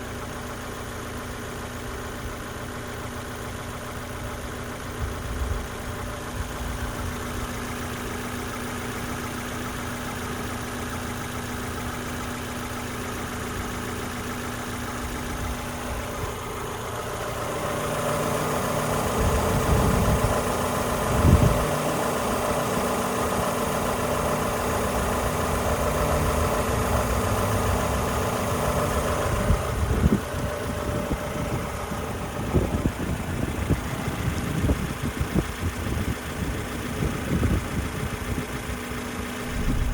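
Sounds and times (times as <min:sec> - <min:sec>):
car engine running: 0:00.0 - 0:39.9
short low thumps: 0:39.4 - 0:39.9.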